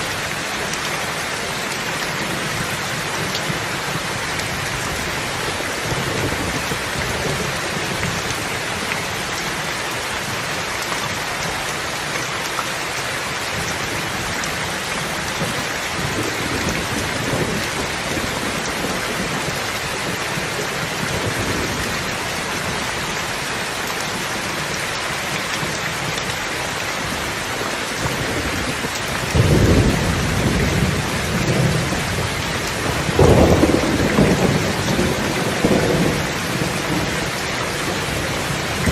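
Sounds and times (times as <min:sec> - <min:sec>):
heavy rain: 0:00.0 - 0:38.9
thunder rumbling: 0:28.0 - 0:38.9.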